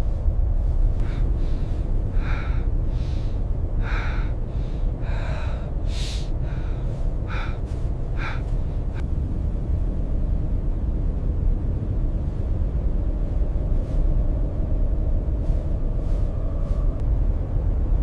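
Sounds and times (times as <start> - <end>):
low wind rumble: 0.0 - 18.0
person gasping for breath: 1.0 - 9.0.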